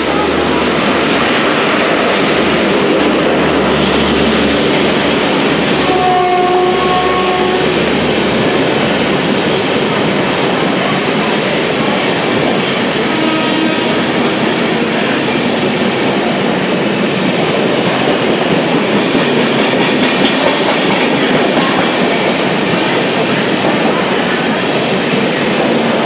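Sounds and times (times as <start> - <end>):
train wheels on track: 0.0 - 26.0
train horn: 5.8 - 7.9, 13.0 - 14.5.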